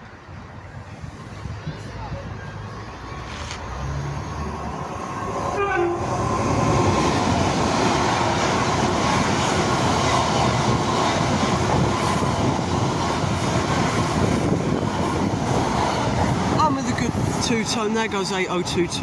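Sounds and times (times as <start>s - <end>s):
train passing fast: 0.0s - 19.0s
two-tone train horn: 5.5s - 6.2s.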